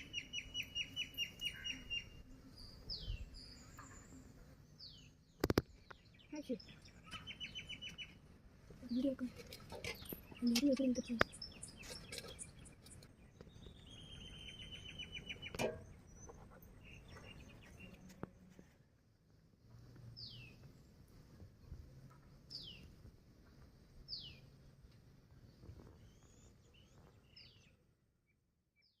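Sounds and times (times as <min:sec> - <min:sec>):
bird chirps: 0:00.0 - 0:08.2, 0:08.9 - 0:18.2, 0:25.8 - 0:27.8.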